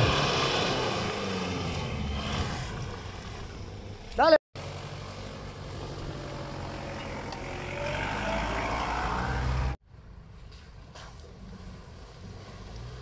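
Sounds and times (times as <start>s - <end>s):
engine revving: 0.0s - 3.6s, 4.6s - 9.8s.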